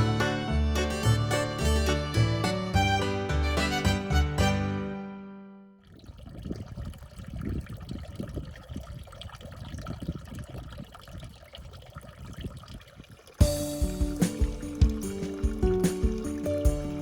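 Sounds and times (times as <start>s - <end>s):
water pouring into a tub: 5.8s - 17.0s.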